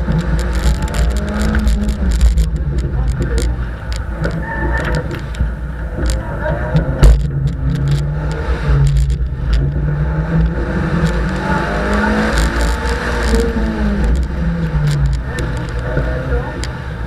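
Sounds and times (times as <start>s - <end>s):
sharp clicks: 0.0s - 9.8s, 10.4s - 16.8s
rally car engine revving: 0.0s - 17.0s.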